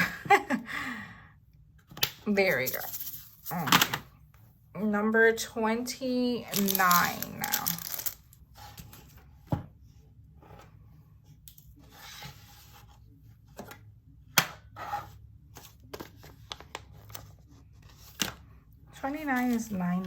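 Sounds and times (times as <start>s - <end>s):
plastic bags rustling: 6.5s - 8.4s.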